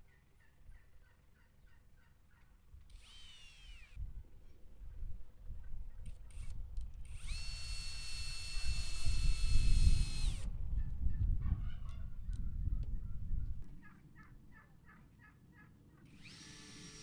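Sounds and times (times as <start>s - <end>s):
small electric motor whining: 2.9s - 4.0s, 6.0s - 10.5s, 16.1s - 17.0s
constant low rumble: 8.6s - 16.1s.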